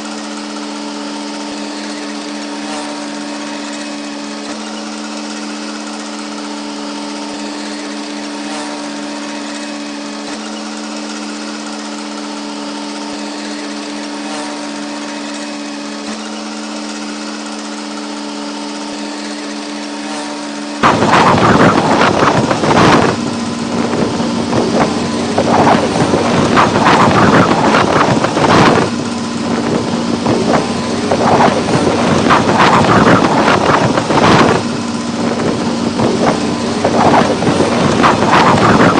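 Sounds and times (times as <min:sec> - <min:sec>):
heavy machinery engine running: 0:00.0 - 0:38.9
wind buffeting microphone: 0:20.8 - 0:38.9.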